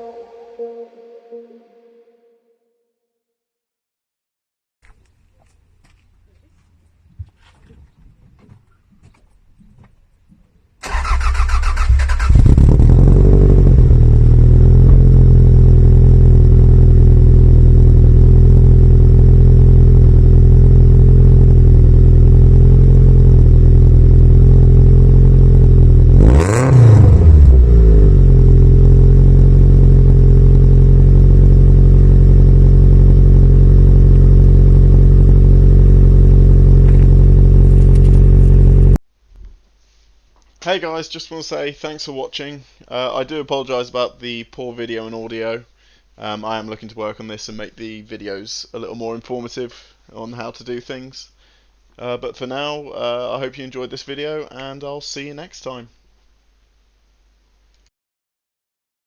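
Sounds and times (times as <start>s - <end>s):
car engine starting and idling: 10.8s - 39.0s
engine revving: 10.8s - 39.0s.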